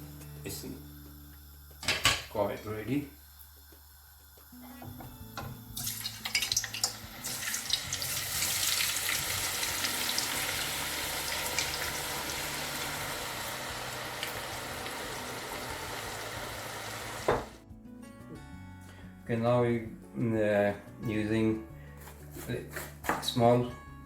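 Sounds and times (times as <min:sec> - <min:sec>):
chips sizzling in hot oil: 0:05.7 - 0:17.6.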